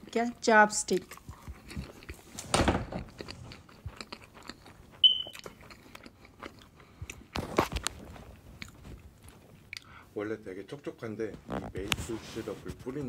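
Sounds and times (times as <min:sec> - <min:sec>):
man chewing cake: 0:00.9 - 0:02.4, 0:03.0 - 0:10.0.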